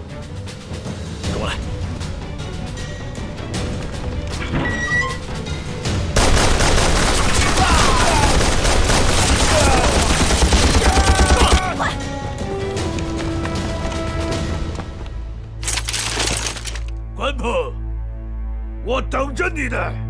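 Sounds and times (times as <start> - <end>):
background music: 0.0 - 20.0
rapid gunfire: 6.2 - 11.6.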